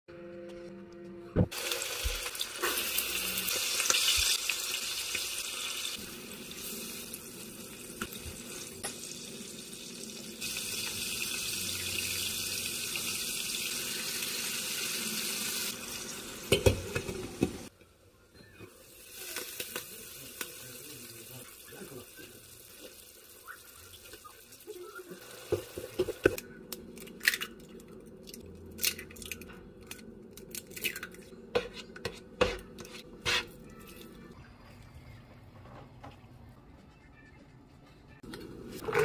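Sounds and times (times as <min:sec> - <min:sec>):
chicken sizzling in a frying pan: 0:01.5 - 0:17.7, 0:18.8 - 0:26.4.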